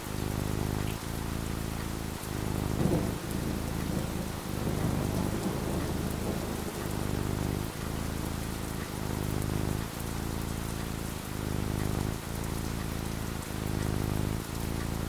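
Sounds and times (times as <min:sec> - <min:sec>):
rain falling: 0:00.0 - 0:15.0
low thunder rumble: 0:02.6 - 0:08.5.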